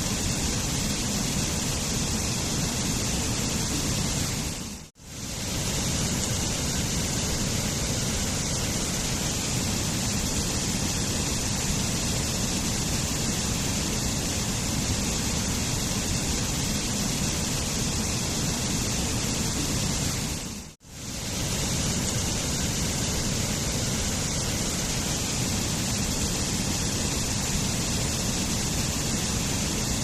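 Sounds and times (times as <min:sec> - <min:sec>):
waterfall rushing: 0:21.0 - 0:30.0.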